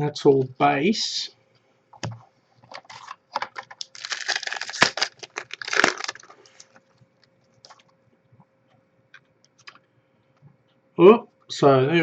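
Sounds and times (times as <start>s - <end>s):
wrapper crinkling and tearing: 2.8s - 6.8s
wrapper snaps: 2.9s - 6.8s.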